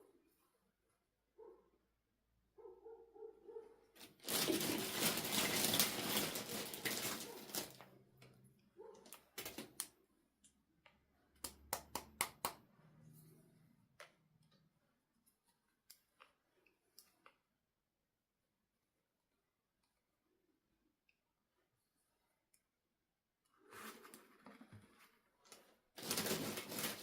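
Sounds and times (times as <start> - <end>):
packaging rustling and tearing: 4.0 - 8.0, 9.1 - 9.8, 25.9 - 27.0
sharp clicks and taps: 9.8 - 12.6.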